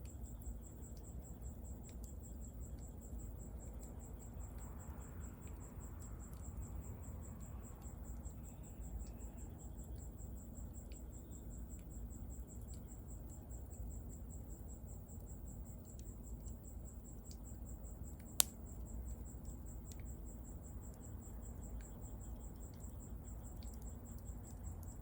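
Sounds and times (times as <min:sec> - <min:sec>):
cricket chirping: 0:00.0 - 0:25.0
bonfire crackling and popping: 0:18.2 - 0:18.6.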